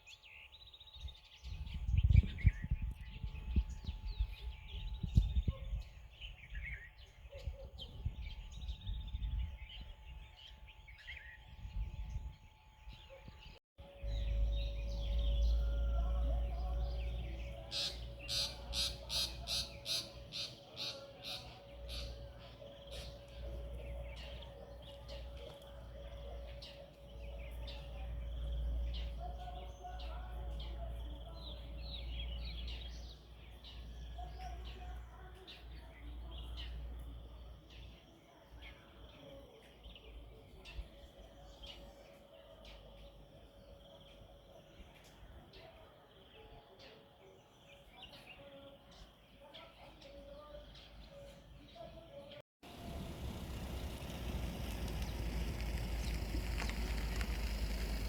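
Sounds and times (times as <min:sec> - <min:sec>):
wild birds chirping: 0:00.0 - 0:58.0
low steady rumble: 0:13.9 - 0:18.7, 0:52.7 - 0:58.0
bird sharp repeated calls: 0:17.6 - 0:23.2
faint steady hum: 0:52.7 - 0:58.0.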